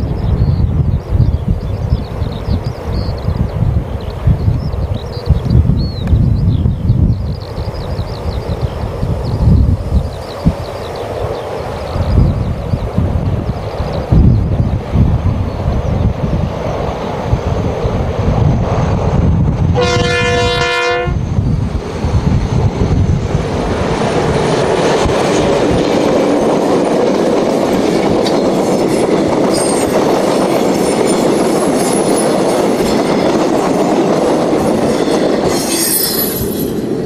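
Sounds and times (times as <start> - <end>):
train wheels on rails: 0.0 - 37.0
locomotive horn blast: 19.7 - 21.2
high wheel squeal: 29.4 - 30.1, 34.8 - 37.0.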